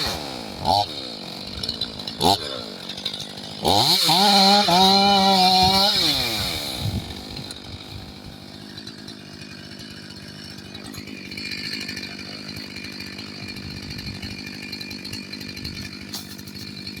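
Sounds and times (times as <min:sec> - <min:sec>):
chainsaw idling: 0:00.0 - 0:17.0.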